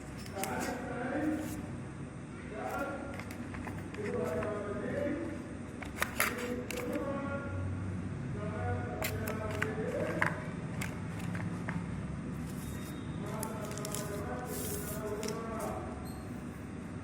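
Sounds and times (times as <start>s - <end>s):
steady low hum: 0.0s - 17.0s
packaging clicks: 5.8s - 7.0s, 9.0s - 11.8s
packaging rustle: 12.4s - 15.7s.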